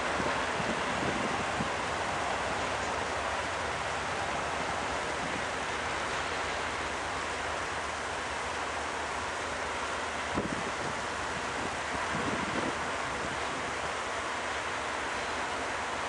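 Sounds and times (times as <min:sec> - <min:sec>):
wind gust on microphone: 0:00.0 - 0:02.8, 0:10.3 - 0:13.8
freight train rumbling on rails: 0:00.0 - 0:16.0.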